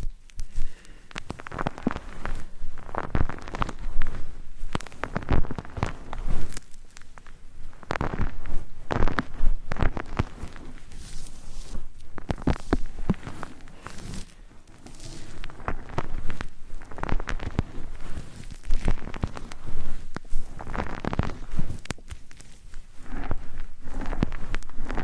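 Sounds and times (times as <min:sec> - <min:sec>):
crackling and scratchy rubbing: 0:00.0 - 0:25.0.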